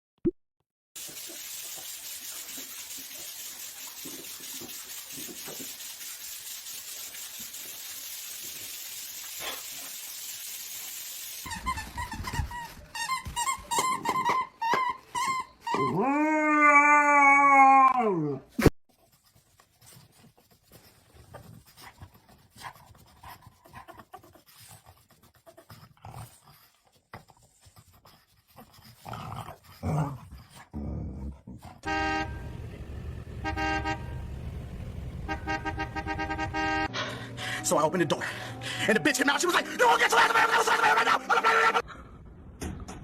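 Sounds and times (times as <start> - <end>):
dog howling: 15.8 - 18.4.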